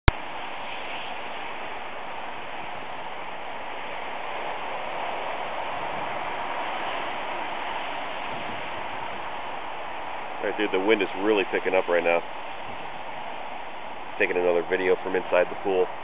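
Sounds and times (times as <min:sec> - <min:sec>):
strong wind rushing: 0:00.1 - 0:16.0.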